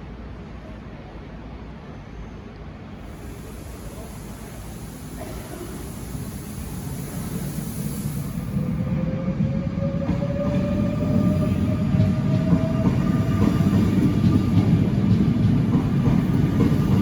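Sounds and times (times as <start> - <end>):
wheels rumbling on rails: 9.6 - 17.0.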